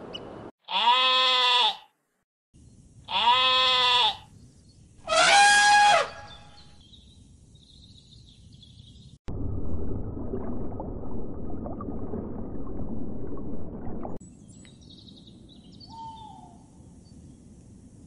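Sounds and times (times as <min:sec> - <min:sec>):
underwater rumble and bubbling: 0:09.3 - 0:14.2.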